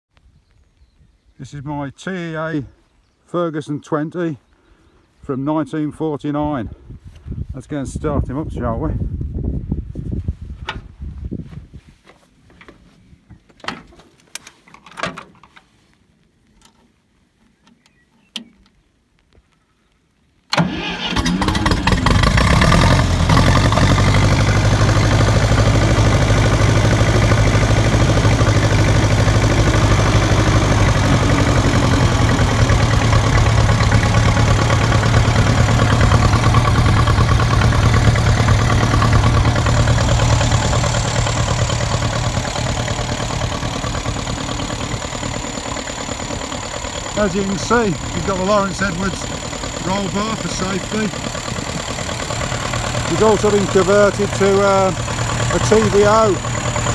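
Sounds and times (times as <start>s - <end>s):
tractor engine starting and idling: 20.5s - 56.9s.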